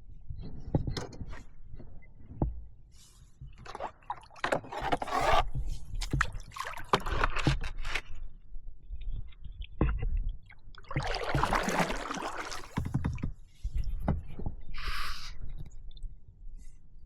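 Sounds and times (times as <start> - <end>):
paddle strokes splashing water: 6.0 - 7.7, 10.8 - 13.2
boat knocks and rumble: 10.9 - 14.6.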